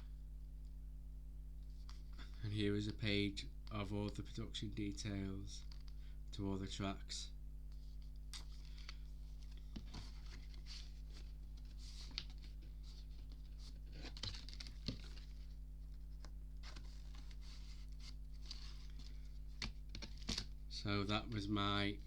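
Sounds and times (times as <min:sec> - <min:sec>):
paper rustling and light taps: 0:07.7 - 0:20.5.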